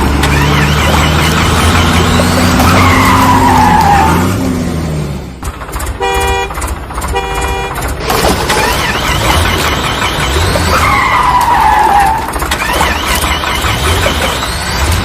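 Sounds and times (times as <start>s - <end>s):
vehicle engine running: 0.0s - 15.0s
squealing gliding whines: 0.1s - 4.4s, 8.4s - 15.0s
short horn honks: 6.0s - 7.8s.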